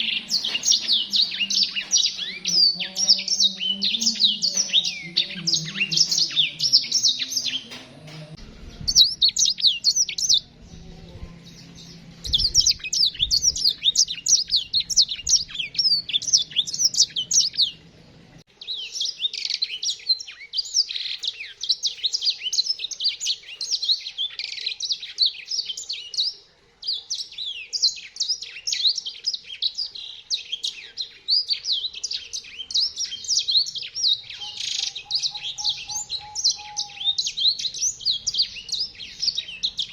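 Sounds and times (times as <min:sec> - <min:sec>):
finches twittering: 0:00.0 - 0:17.8, 0:32.0 - 0:39.9
faint low hum: 0:00.0 - 0:18.8.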